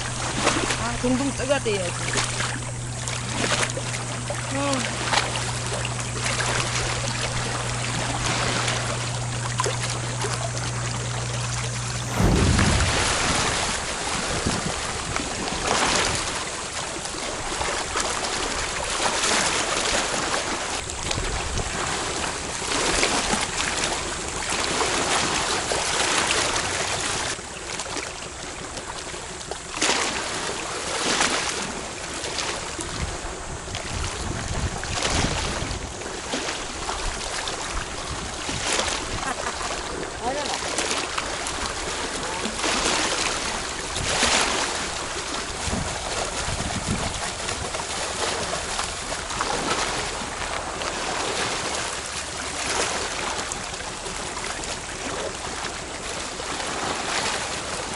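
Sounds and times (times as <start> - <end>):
low steady hum: 0.0 - 14.1
water sloshing and splashing: 11.8 - 13.9
wind buffeting microphone: 11.8 - 14.8, 45.4 - 47.8.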